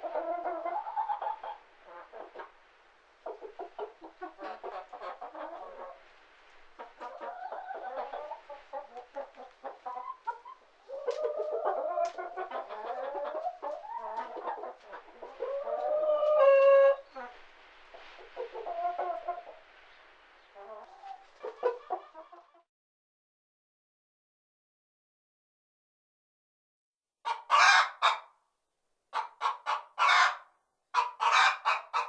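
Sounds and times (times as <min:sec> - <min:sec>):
hen cackling: 0:06.8 - 0:17.2, 0:27.3 - 0:28.2, 0:29.2 - 0:32.0.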